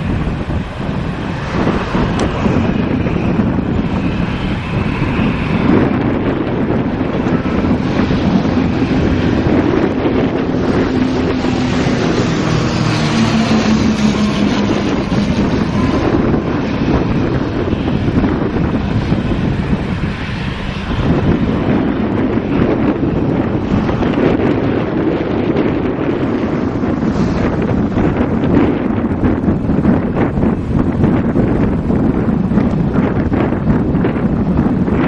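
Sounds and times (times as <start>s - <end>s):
jet engines rumbling: 0.0s - 35.0s
wind buffeting microphone: 0.0s - 35.0s.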